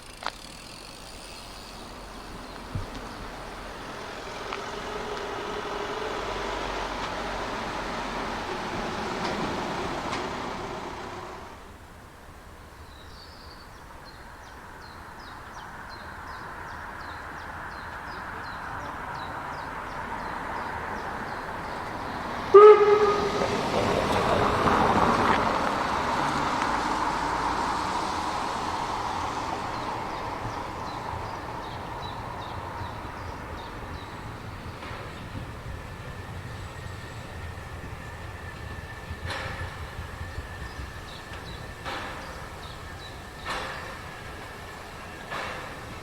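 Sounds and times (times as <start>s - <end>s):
train running past: 0.0s - 12.8s, 14.4s - 46.0s
train whistle blast: 4.2s - 8.5s, 22.5s - 24.3s.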